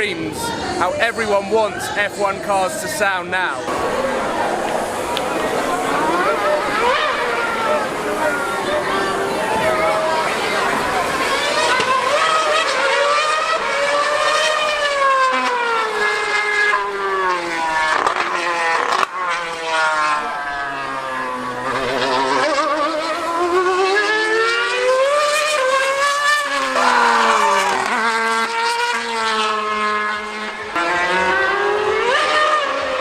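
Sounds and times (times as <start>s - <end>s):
racing car engine screaming: 3.6s - 33.0s.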